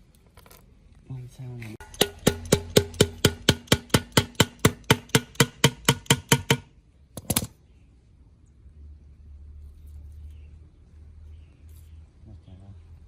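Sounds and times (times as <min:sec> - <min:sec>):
hammer blows on metal: 0:01.8 - 0:06.7.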